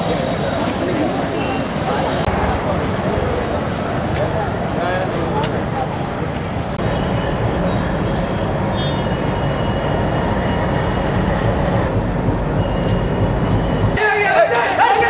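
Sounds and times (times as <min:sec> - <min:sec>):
high squeals of wheels: 0:00.0 - 0:02.3, 0:06.8 - 0:11.9, 0:12.6 - 0:15.0
train rumbling: 0:00.0 - 0:15.0.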